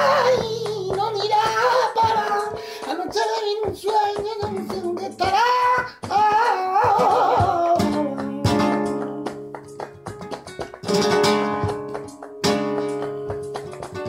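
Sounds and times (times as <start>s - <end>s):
person singing: 0.0s - 9.6s
acoustic guitar strumming: 0.0s - 14.0s.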